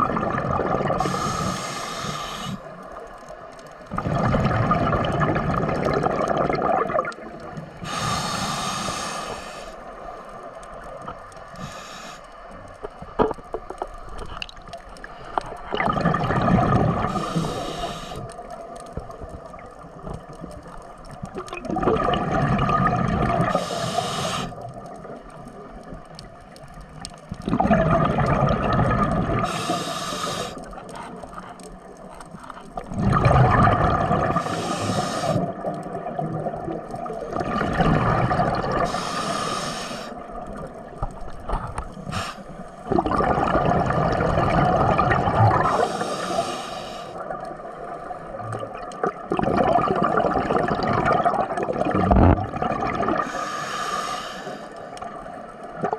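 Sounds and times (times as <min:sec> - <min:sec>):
ocean water surging: 0:00.0 - 0:02.8, 0:21.1 - 0:25.8, 0:27.4 - 0:31.2, 0:33.0 - 0:41.0, 0:42.0 - 0:55.9
water gurgling: 0:00.0 - 0:09.6, 0:12.6 - 0:53.6, 0:54.9 - 0:55.9
hissing spray: 0:07.8 - 0:09.7, 0:17.1 - 0:18.2, 0:23.5 - 0:24.6, 0:29.5 - 0:30.6, 0:34.4 - 0:35.4, 0:38.9 - 0:40.1.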